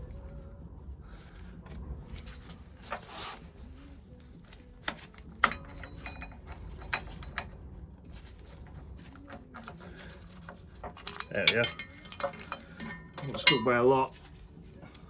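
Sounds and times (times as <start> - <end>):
metal scrape: 1.2 - 15.0
metal tools knocking on engine parts: 9.7 - 14.1.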